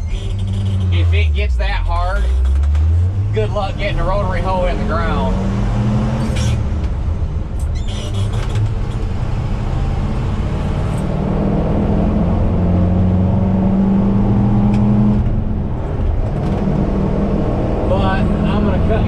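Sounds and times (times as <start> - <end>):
heavy vehicle engine running: 14.6 - 19.0.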